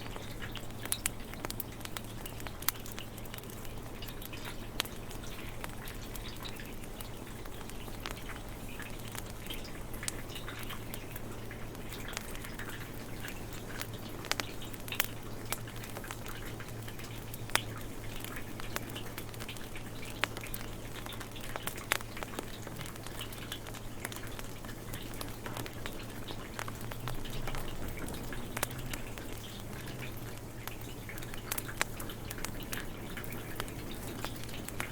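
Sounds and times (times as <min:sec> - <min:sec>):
wood fire crackling: 0:00.0 - 0:34.9
rain hissing: 0:11.3 - 0:34.9.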